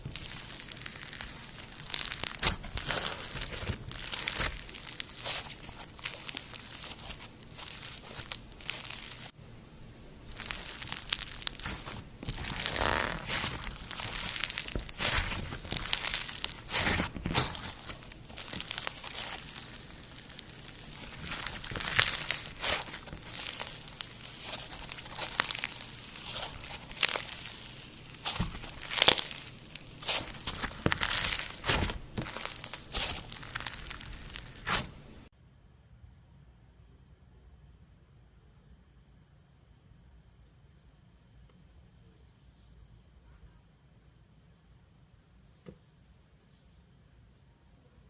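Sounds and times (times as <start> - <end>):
slime squished by hand: 0.0 - 9.3, 10.2 - 35.3
slime crackles and pops: 0.0 - 9.4, 10.2 - 35.3.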